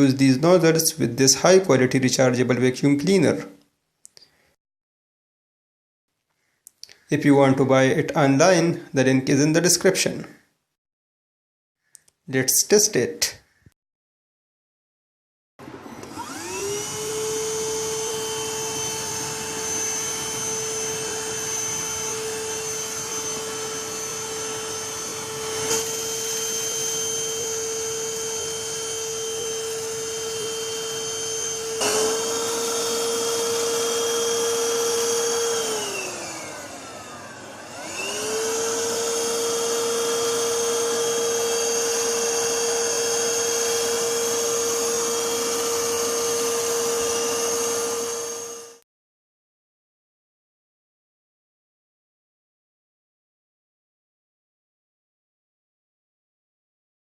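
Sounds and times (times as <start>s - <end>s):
handheld vacuum cleaner whine: 15.6s - 48.8s.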